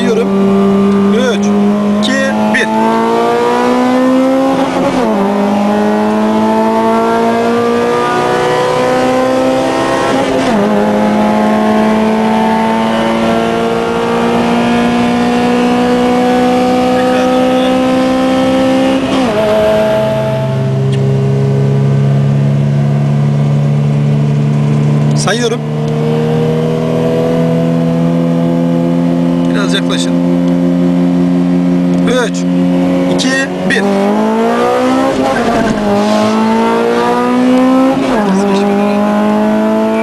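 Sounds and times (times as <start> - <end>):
car engine at full throttle: 0.0 - 40.0
gear upshifts: 31.4 - 40.0.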